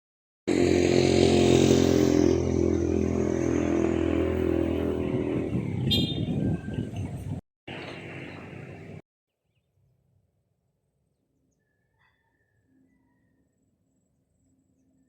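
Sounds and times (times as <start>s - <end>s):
vehicle engine running: 0.5s - 9.0s.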